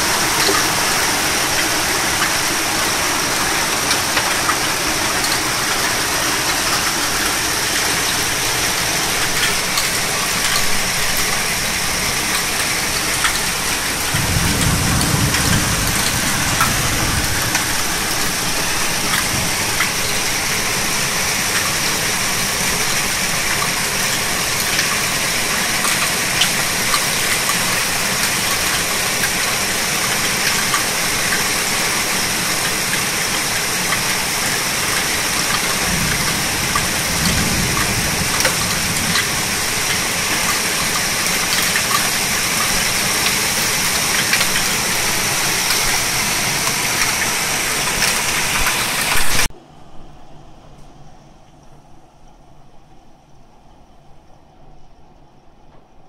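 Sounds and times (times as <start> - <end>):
heavy rain pouring: 0.0 - 49.5
low rumble: 14.0 - 20.8.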